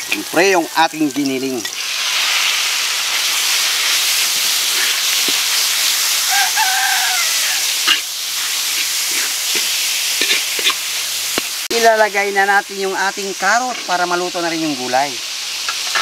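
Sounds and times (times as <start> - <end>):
rooster crowing: 0.0 - 1.6, 6.1 - 8.1
meat sizzling in hot oil: 0.0 - 16.0
metal spatula scraping wok: 1.3 - 6.4, 7.6 - 11.1, 13.6 - 14.1, 15.6 - 16.0.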